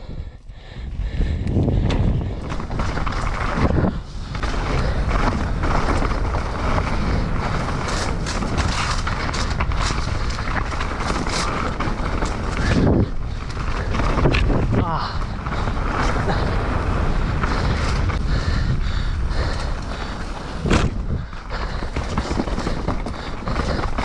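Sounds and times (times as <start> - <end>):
bike knocks and rattles: 0.0 - 14.6, 19.6 - 24.0
bike tyres rumbling over roots: 0.0 - 24.0
wind buffeting microphone: 0.0 - 24.0.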